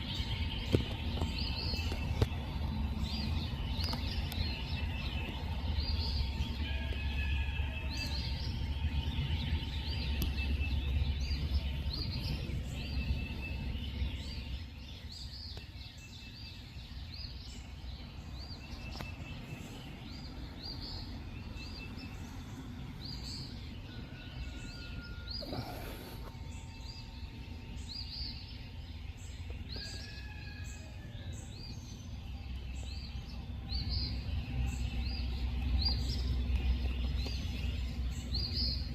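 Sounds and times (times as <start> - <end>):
small animals chirping: 25.4 - 26.5.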